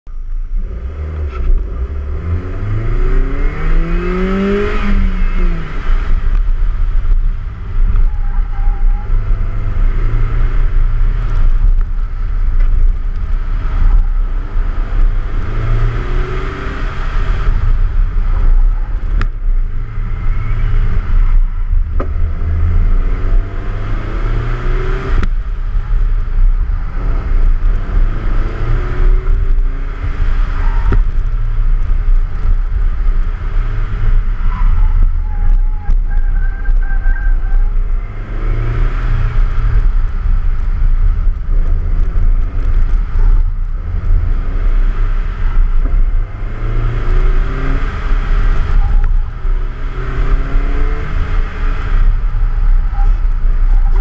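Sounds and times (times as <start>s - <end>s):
wind rumble on microphone: 0.1s - 54.0s
car engine revving hard: 0.6s - 6.4s.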